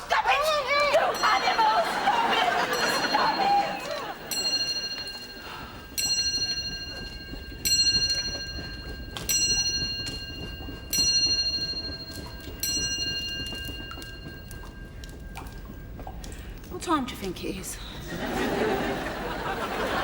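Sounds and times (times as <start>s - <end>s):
clock bell striking: 0.9s - 16.0s.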